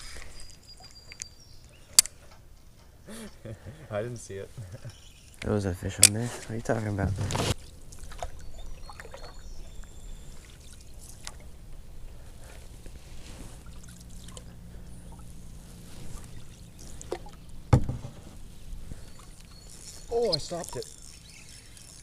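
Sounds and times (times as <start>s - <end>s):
steady low rumble: 6.6s - 19.4s
water trickling and splashing: 7.5s - 17.7s.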